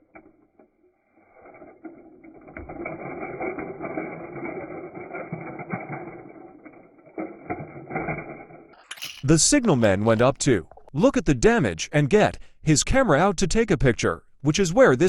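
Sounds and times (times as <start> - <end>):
mechanical rattling rumble: 0.0 - 10.9.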